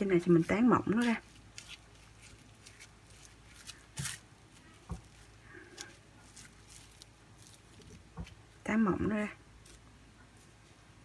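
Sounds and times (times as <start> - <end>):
mashed potato pressed on cling film: 0.0 - 8.7.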